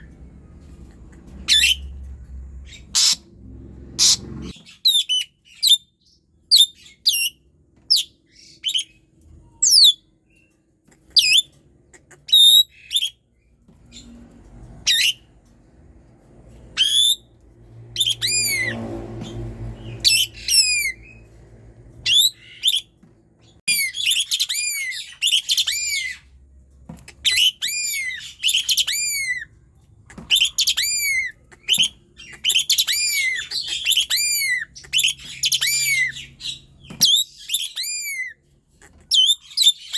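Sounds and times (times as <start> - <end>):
faint low rumble: 0.0 - 4.6
starling singing: 1.4 - 2.0, 19.8 - 21.2, 30.1 - 39.9.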